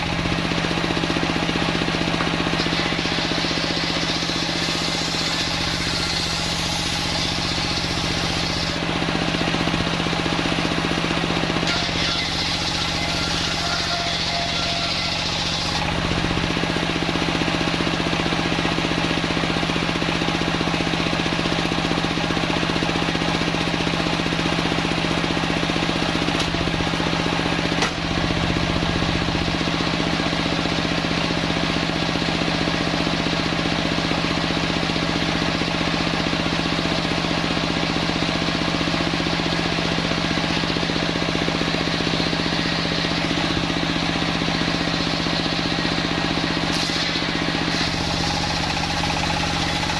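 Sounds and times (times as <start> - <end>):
circular sawmill humming: 0.0 - 49.9.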